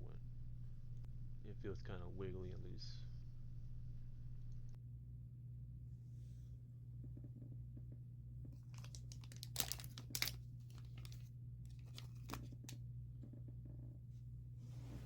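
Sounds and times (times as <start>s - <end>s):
low electrical hum: 0.0s - 15.0s
small parts crinkling and clicking: 8.5s - 12.8s.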